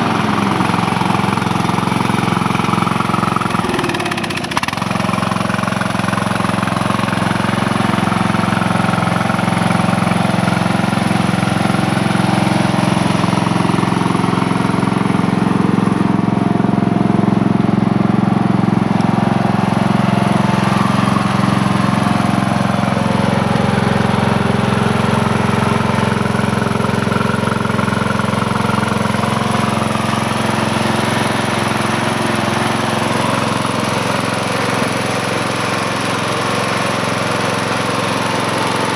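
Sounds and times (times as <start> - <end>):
riding lawn mower engine running: 0.0 - 38.9.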